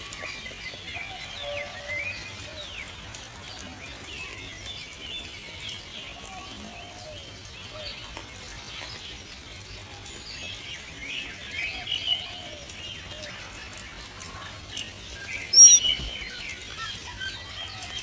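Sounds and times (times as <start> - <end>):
birds chirping: 15.2 - 17.0
sharp downward-sliding bird call: 15.6 - 16.1.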